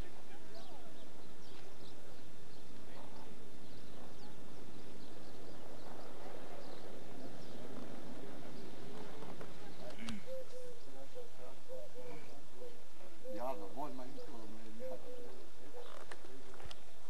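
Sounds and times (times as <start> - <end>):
people's voices: 0.0 - 16.8
small birds chirping: 0.0 - 17.0.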